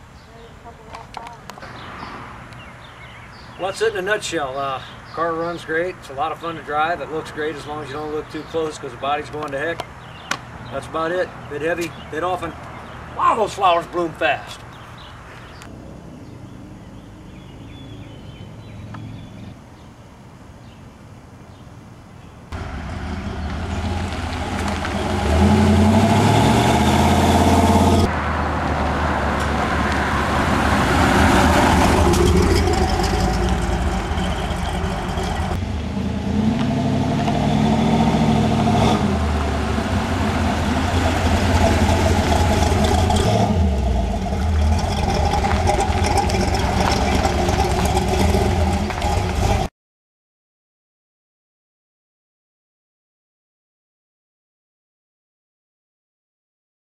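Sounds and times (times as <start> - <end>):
car engine revving: 22.6 - 49.7.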